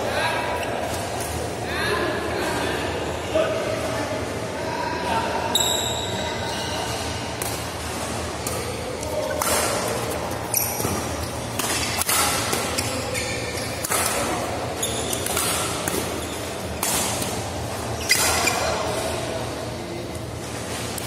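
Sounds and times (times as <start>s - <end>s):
shoes squeaking on court floor: 5.5s - 7.3s, 8.4s - 19.3s
rackets hitting shuttlecock: 8.4s - 19.0s.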